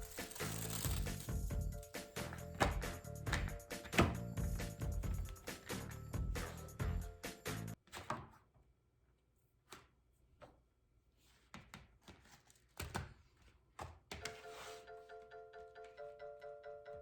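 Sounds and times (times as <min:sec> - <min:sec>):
background music: 0:00.0 - 0:07.8, 0:14.4 - 0:17.0.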